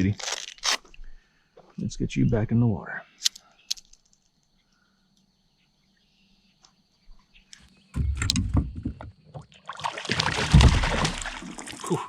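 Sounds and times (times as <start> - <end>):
thumps and rubbing against kayak: 7.9 - 9.6.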